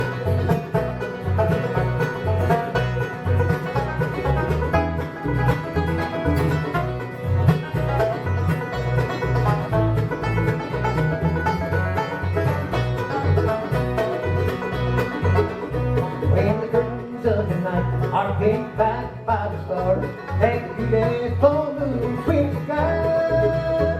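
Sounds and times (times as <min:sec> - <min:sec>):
banjo picking: 0:00.0 - 0:23.9
bass notes: 0:00.0 - 0:23.9
guitar picking: 0:00.0 - 0:23.9.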